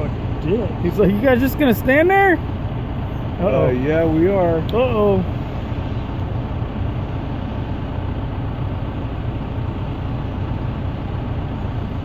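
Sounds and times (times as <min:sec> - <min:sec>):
backhoe engine idling: 0:00.0 - 0:12.0.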